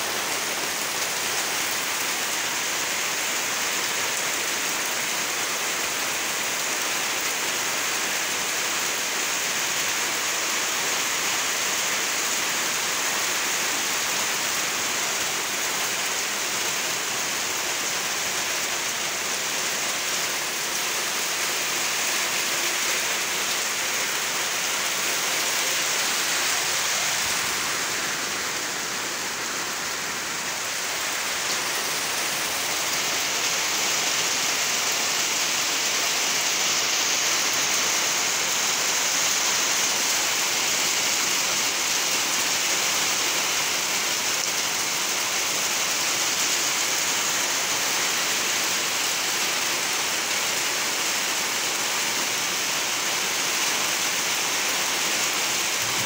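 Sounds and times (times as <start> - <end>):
heavy rain on foliage: 0.0 - 56.0.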